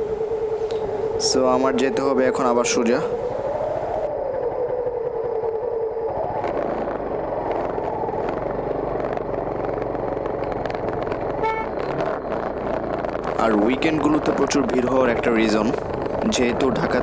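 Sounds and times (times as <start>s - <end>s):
motorcycle engine running: 6.3s - 17.0s
vehicle horn toot: 11.4s - 11.8s.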